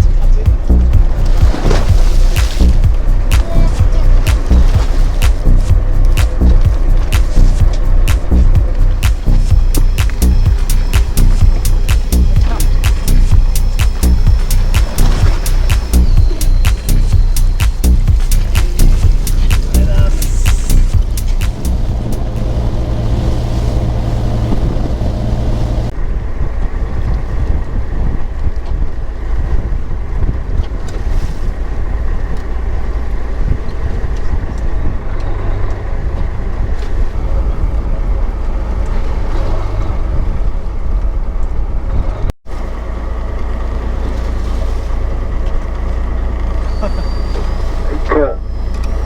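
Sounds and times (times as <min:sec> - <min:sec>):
wind buffeting microphone: 0:00.0 - 0:42.3
boat engine rumbling: 0:00.0 - 0:49.0.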